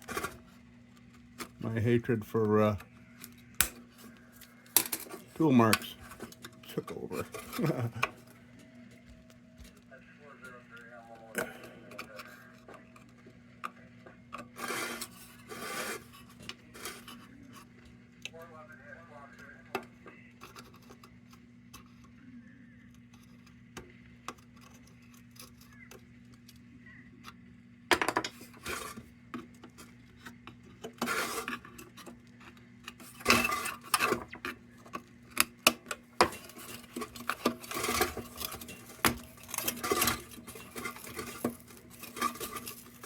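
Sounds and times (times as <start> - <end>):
metal tool scraping sheet metal: 14.6 - 16.2.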